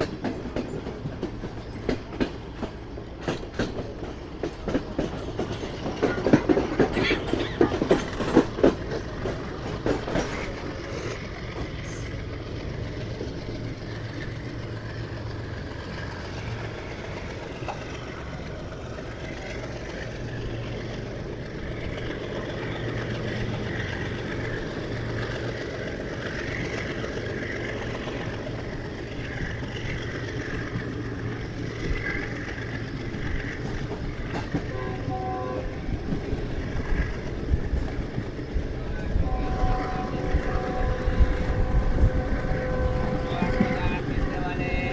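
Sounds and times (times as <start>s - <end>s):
train wheels rumbling on rails: 0.0s - 44.9s
train horn: 34.6s - 36.3s, 39.0s - 44.9s.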